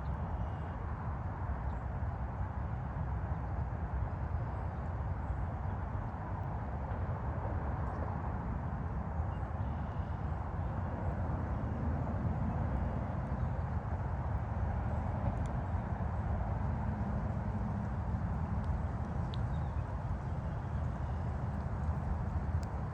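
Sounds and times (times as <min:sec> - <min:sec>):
distant highway traffic roar: 0:05.0 - 0:22.9.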